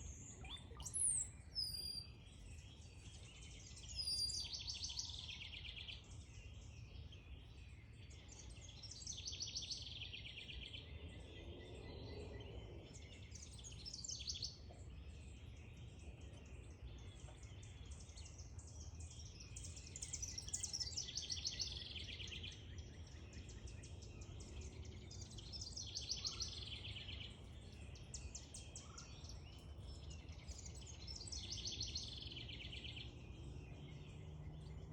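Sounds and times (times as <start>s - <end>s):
small songbirds singing: 0.0s - 34.9s.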